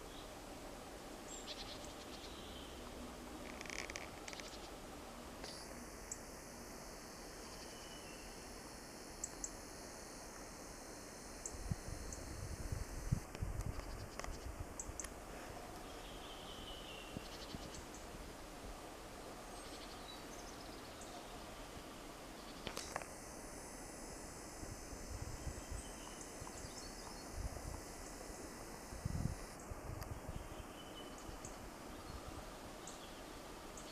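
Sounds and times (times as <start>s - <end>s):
faint steady hiss: 0.0s - 33.9s
faint bird chirps: 1.3s - 2.8s, 7.4s - 8.4s, 15.8s - 18.1s, 25.4s - 27.4s, 30.3s - 33.9s.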